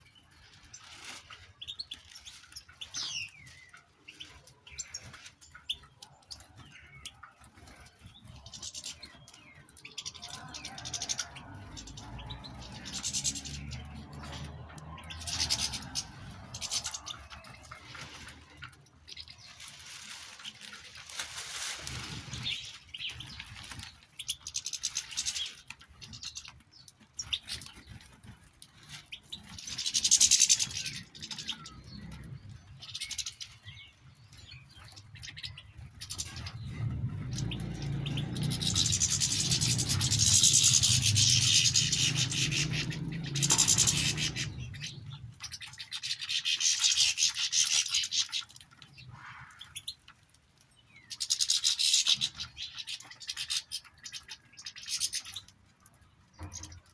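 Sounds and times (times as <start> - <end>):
small birds chirping: 0.0 - 56.9
dry rustling: 17.6 - 24.1.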